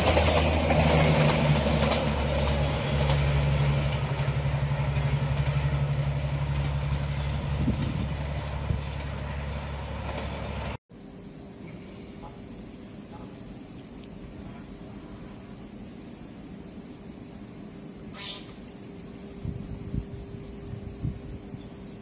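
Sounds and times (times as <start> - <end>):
crickets chirping: 0.0 - 9.8, 10.9 - 22.0
locomotive engine drone: 0.0 - 22.0
rail noise: 0.0 - 22.0.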